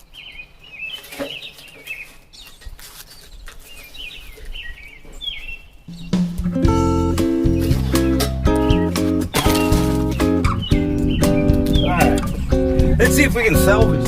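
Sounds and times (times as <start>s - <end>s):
small birds chirping: 0.0s - 14.0s
strummed acoustic guitar: 6.3s - 14.0s.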